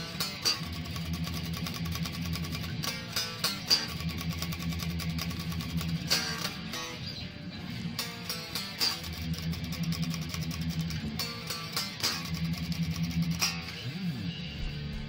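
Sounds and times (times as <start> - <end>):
electric guitar picked notes: 0.0 - 15.0.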